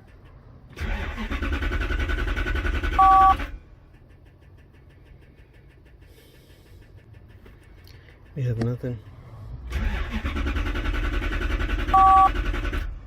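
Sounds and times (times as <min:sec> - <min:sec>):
car engine cranking: 0:00.0 - 0:13.0
two-tone beep: 0:03.0 - 0:03.4, 0:11.9 - 0:12.3.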